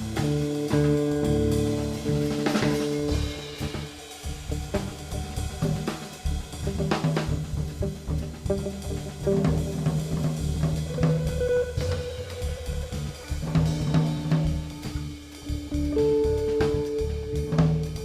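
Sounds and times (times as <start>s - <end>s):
drum kit playing: 0.0s - 18.0s
guitar: 0.0s - 18.0s
cello: 4.6s - 18.0s.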